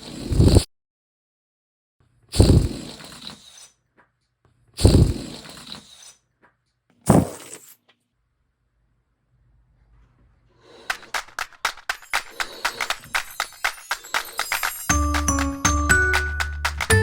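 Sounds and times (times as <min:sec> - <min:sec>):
balloon being struck: 0:07.1 - 0:07.6.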